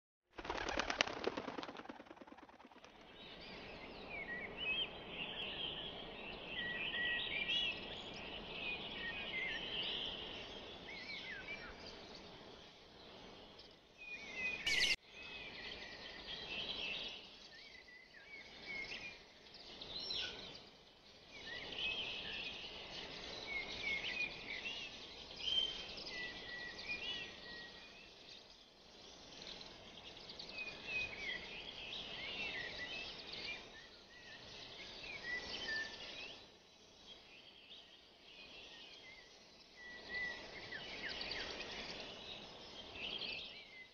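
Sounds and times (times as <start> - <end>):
outdoor background hiss: 0.4 - 43.9
birds chirping and trilling: 0.5 - 16.2.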